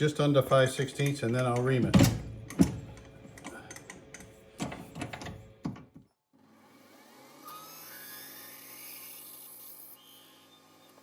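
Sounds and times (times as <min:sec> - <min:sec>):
metal tools clicking and knocking: 0:01.0 - 0:05.3
lathe drilling with high hiss: 0:07.3 - 0:11.0.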